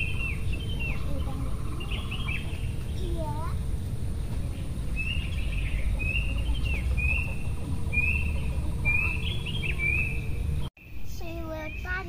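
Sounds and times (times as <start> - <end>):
low rumble: 0.0 - 11.1
bird calling high note: 5.0 - 10.6.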